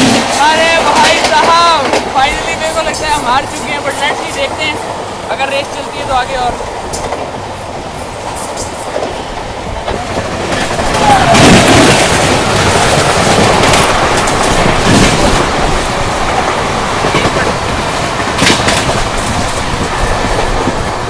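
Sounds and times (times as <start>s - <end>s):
train wheels rushing on rails: 0.0s - 21.0s
sharp clacks: 18.3s - 19.6s.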